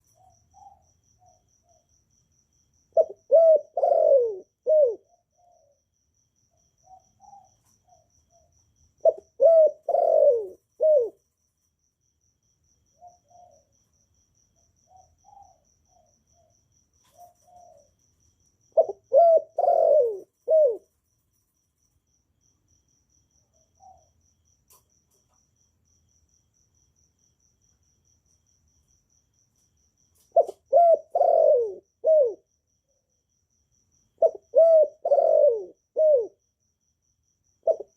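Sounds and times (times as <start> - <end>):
faint cricket chirping: 0.0 - 37.9
dove cooing: 2.9 - 5.8, 9.0 - 11.2, 17.0 - 18.0, 18.7 - 21.0, 30.3 - 32.5, 34.2 - 36.4, 37.6 - 37.9.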